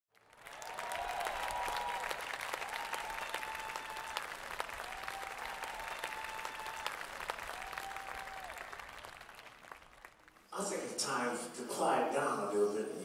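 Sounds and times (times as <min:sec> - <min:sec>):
audience applauding: 0:00.1 - 0:10.5.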